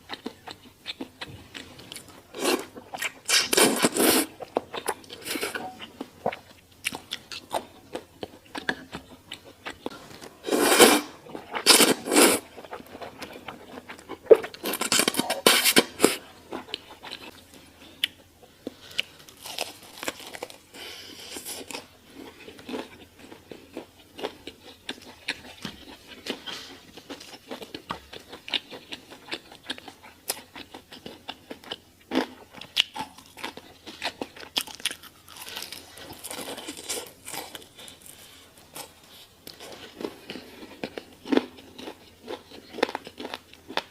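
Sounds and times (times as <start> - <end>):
chewing with wet clicks: 22.4 - 35.5.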